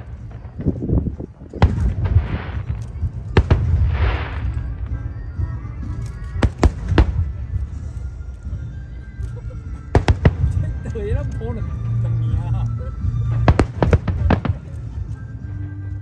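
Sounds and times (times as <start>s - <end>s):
fireworks bangs: 0.0s - 5.1s, 6.4s - 7.6s, 9.9s - 10.9s, 13.2s - 15.0s
music: 0.0s - 16.0s.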